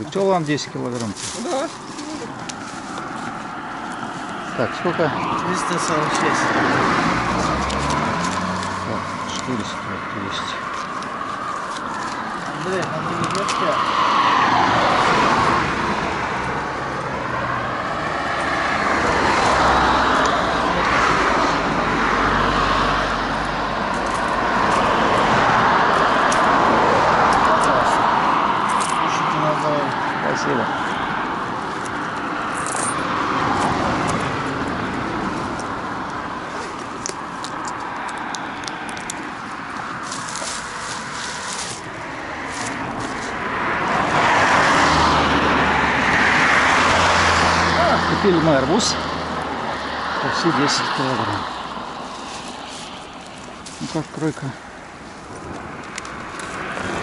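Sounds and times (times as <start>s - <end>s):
cars passing by: 0.0s - 57.0s.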